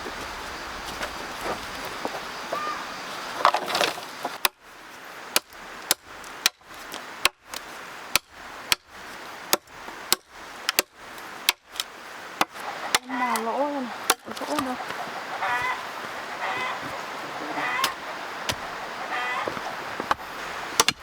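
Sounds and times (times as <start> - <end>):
tool striking wood: 20.8 - 21.0.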